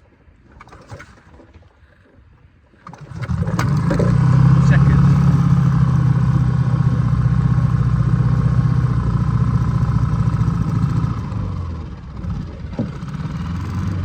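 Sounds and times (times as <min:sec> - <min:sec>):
outboard motor idling: 0:00.4 - 0:14.0.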